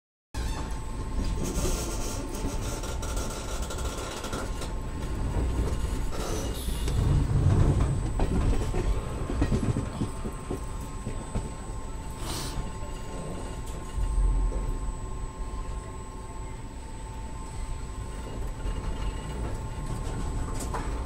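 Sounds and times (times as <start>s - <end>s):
train wheels rumbling: 0.4s - 14.9s.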